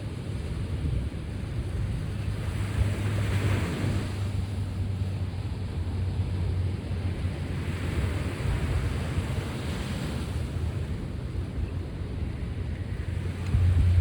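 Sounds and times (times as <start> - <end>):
sea waves washing on shore: 0.0 - 14.0
wind buffeting microphone: 0.0 - 14.0.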